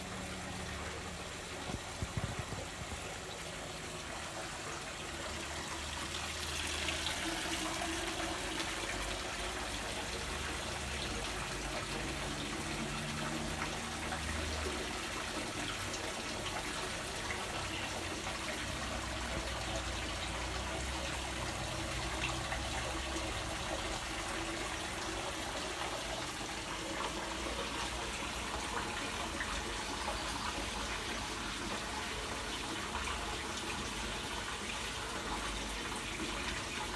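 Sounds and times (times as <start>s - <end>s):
water running: 0.0s - 36.9s.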